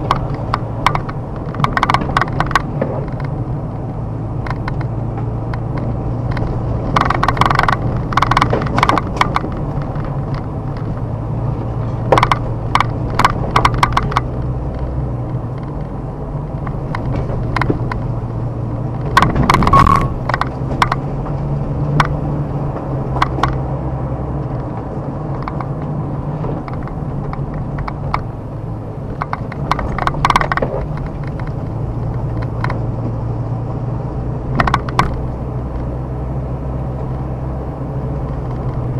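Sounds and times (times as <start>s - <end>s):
car engine and road drone: 0.0s - 38.9s
debris clicking under tyres: 0.0s - 38.9s.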